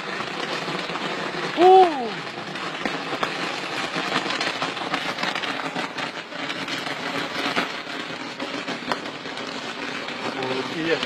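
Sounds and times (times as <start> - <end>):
fireworks crackling: 0.0 - 11.0
sharp firework pops: 0.0 - 11.0.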